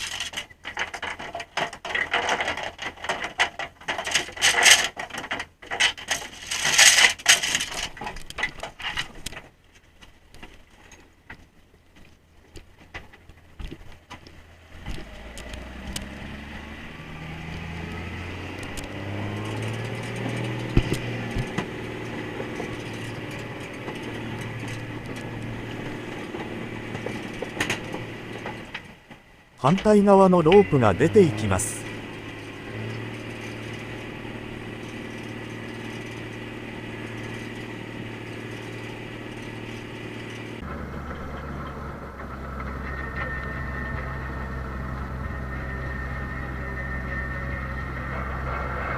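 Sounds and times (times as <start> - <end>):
gear clattering on deck: 0.0 - 16.1, 17.5 - 30.6
boat engine running: 14.3 - 28.8, 29.6 - 48.9.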